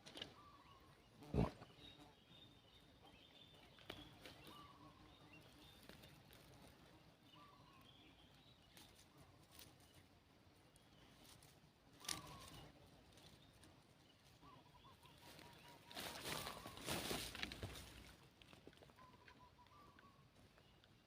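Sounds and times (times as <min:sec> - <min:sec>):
bird calls with falling notes: 0:12.0 - 0:12.7.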